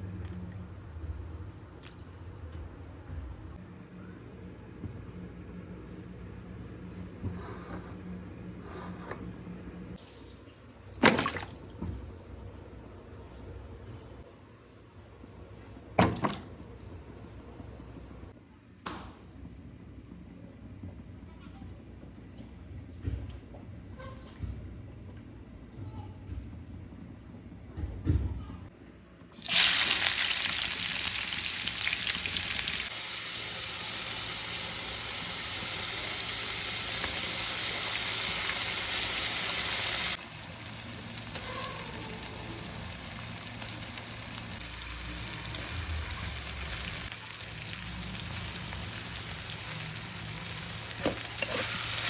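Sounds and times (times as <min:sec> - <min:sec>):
food sizzling in hot oil: 0:29.4 - 0:52.0.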